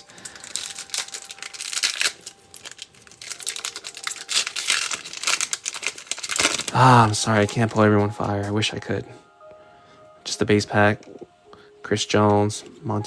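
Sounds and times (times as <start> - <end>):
wrapper crinkling and tearing: 0.0 - 8.5.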